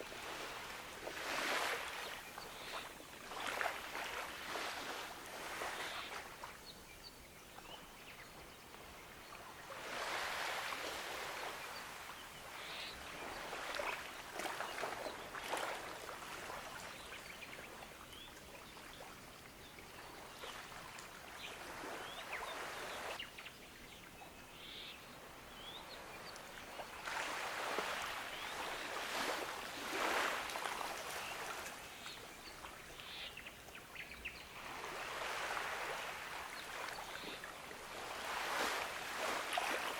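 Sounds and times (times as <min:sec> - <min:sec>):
ocean waves washing onto beach: 0:00.0 - 0:06.6, 0:09.5 - 0:18.0, 0:25.9 - 0:32.0, 0:34.6 - 0:39.9
faint bird chirps: 0:21.4 - 0:27.0.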